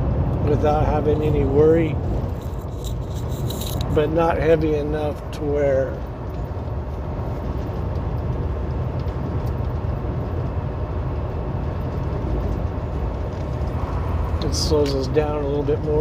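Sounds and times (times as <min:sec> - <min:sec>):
road noise: 0:00.0 - 0:16.0
truck diesel engine drone: 0:00.0 - 0:16.0.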